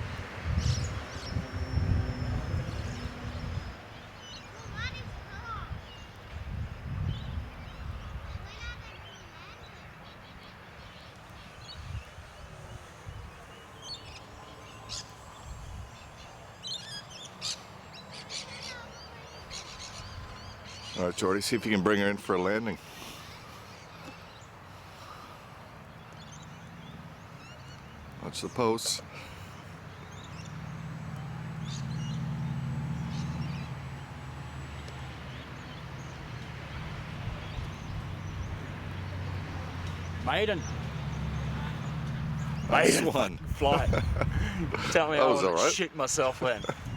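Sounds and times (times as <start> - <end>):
wind rumble on microphone: 0.0 - 3.9, 4.6 - 8.8, 42.4 - 45.0, 46.6 - 46.9
faint electric motor whine: 0.0 - 7.5, 10.6 - 20.9, 29.2 - 40.1
birds chirping: 0.0 - 46.9
faint steady whine: 10.5 - 20.7.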